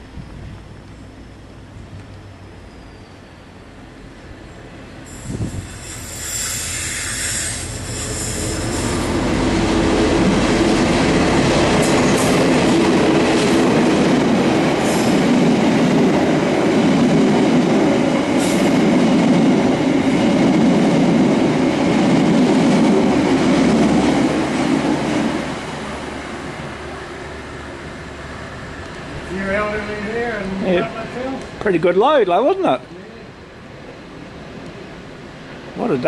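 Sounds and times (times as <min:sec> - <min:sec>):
high squeal: 0:02.4 - 0:03.7, 0:04.4 - 0:09.2
train wheels rumbling on rails: 0:03.8 - 0:32.9.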